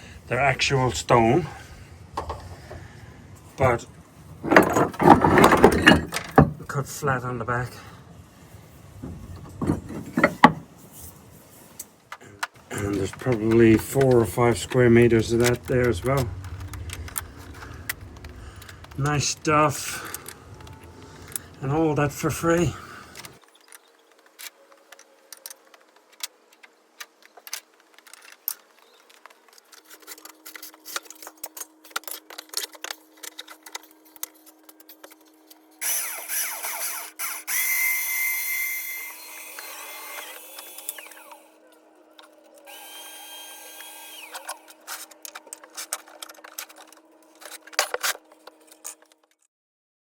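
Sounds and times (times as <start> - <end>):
faint steady hum: 0.0 - 49.3
clicks and knocks: 4.4 - 6.6, 9.0 - 10.7
power tool running: 35.8 - 41.6, 42.5 - 45.1.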